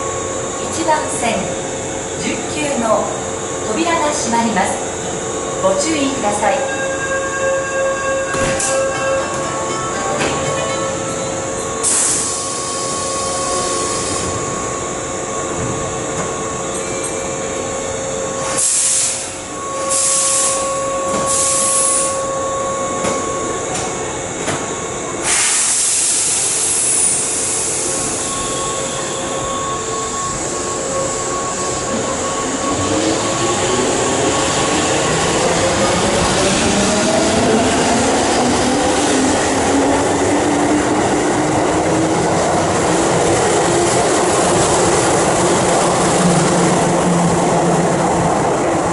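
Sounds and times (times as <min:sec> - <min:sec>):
electric train hum: 0:00.0 - 0:48.9
loud air hisses: 0:11.8 - 0:14.4, 0:18.4 - 0:20.6, 0:25.2 - 0:28.5.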